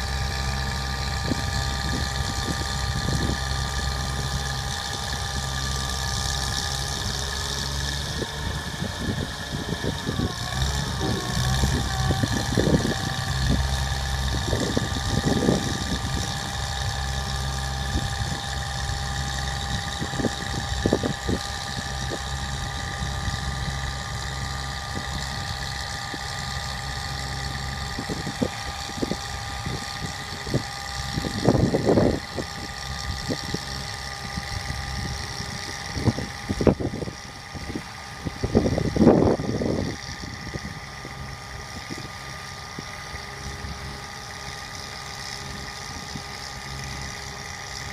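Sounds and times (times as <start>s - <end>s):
steady high whine: 0.0s - 47.9s
truck engine idling: 0.0s - 47.9s.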